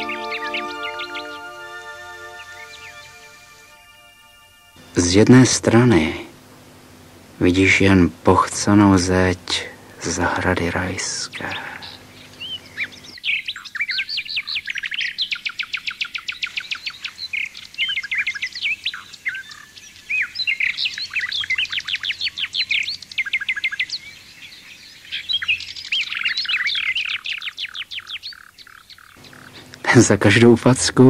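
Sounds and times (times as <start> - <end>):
songbird trilling and chirping: 0.0 - 3.3, 11.4 - 29.8.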